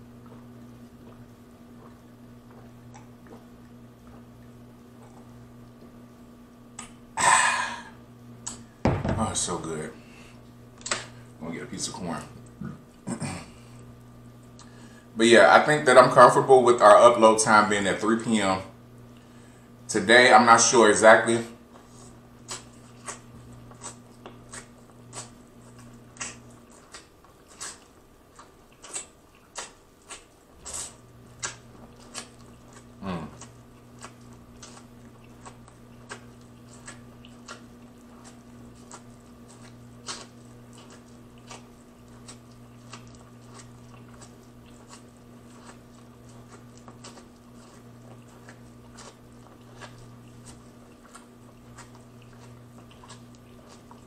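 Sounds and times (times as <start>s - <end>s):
corn being bitten and chewed: 21.8s - 54.0s.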